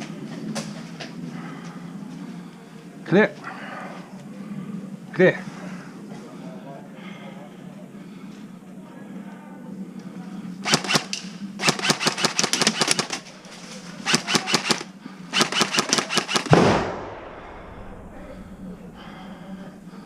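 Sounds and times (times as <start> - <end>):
airsoft rifle firing bursts: 10.6 - 13.3, 14.0 - 16.9
loud sudden bang: 16.5 - 18.9.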